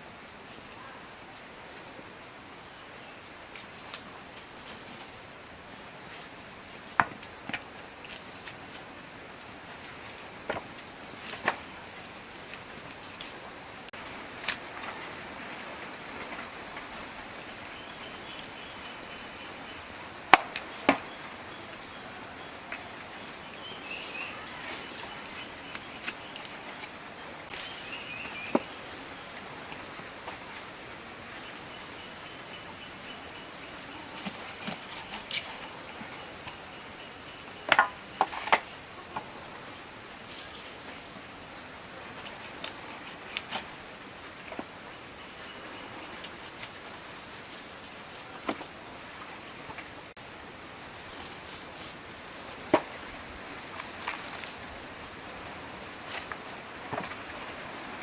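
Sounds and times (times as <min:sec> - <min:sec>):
steady outdoor hiss: 0:00.0 - 0:58.0.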